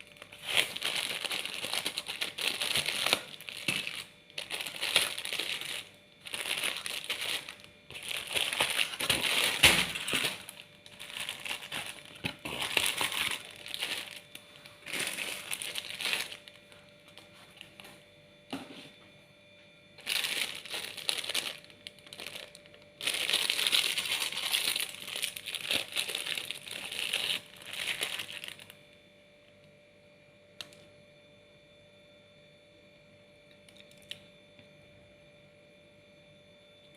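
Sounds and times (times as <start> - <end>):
plastic wrapper crinkling: 0.0 - 17.9, 20.0 - 28.8.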